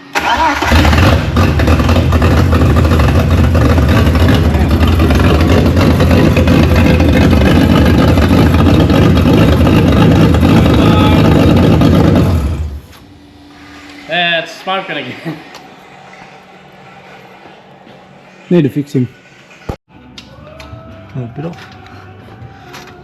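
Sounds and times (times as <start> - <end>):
car engine running: 0.7 - 14.0.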